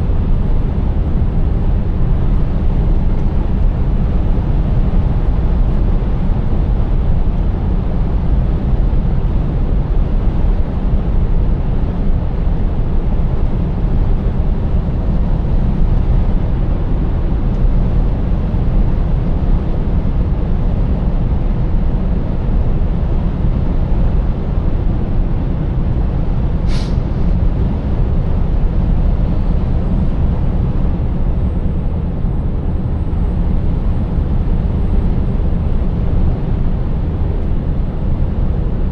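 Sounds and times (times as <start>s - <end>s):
truck engine and road rumble: 0.0s - 38.9s
short sharp click: 26.7s - 27.1s.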